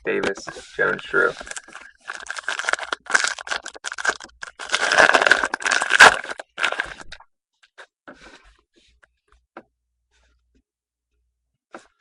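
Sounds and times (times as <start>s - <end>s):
foil wrapper tearing and crinkling: 1.4s - 7.2s
wrapper snapping: 1.5s - 7.2s.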